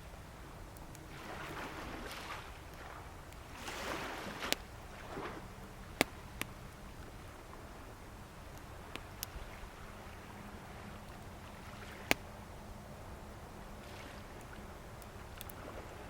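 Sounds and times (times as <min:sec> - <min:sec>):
bonfire popping: 0:00.0 - 0:10.0
waves washing ashore: 0:01.0 - 0:06.4, 0:08.8 - 0:12.4, 0:13.7 - 0:16.0.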